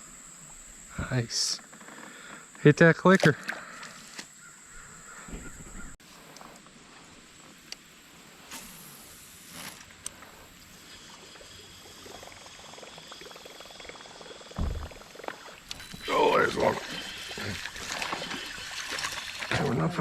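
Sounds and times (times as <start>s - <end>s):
faint insect trill: 0.0s - 20.0s
water rushing: 14.6s - 20.0s.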